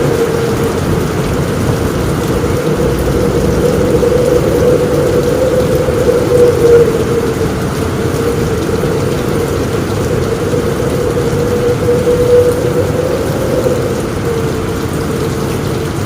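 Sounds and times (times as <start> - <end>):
heavy rain drumming on a roof: 0.0 - 16.0
low storm rumble: 0.0 - 16.0.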